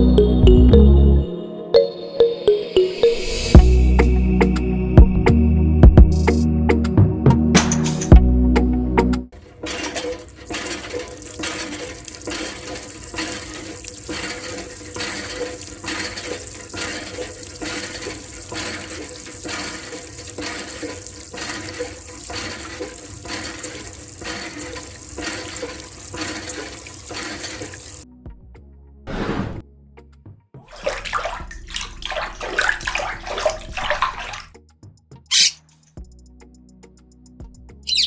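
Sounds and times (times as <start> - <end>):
water splashing from hand pump: 9.4 - 28.0, 30.7 - 34.6.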